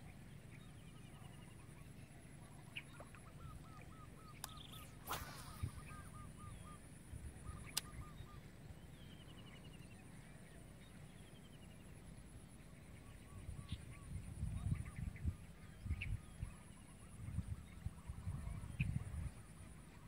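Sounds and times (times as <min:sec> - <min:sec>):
high-pitched pulsing buzz: 0:02.6 - 0:09.7
bird calling: 0:02.6 - 0:09.8
sharp click: 0:04.4 - 0:05.9, 0:07.7 - 0:08.0.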